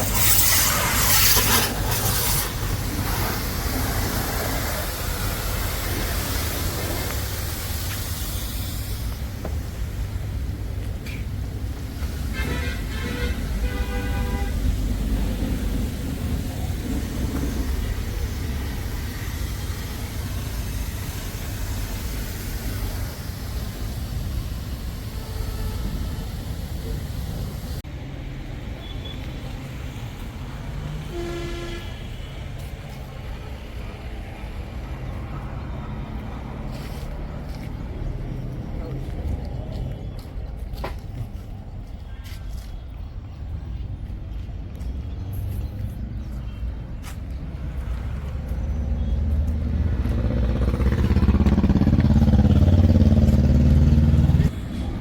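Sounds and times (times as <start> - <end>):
short horn-like tone: 31.1 - 32.0.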